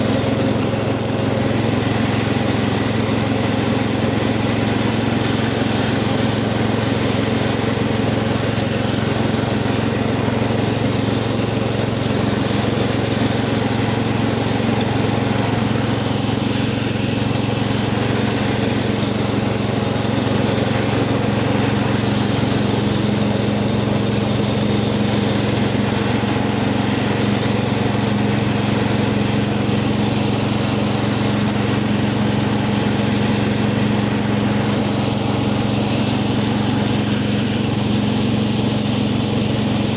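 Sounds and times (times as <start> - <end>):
garden tractor engine running: 0.0 - 39.9.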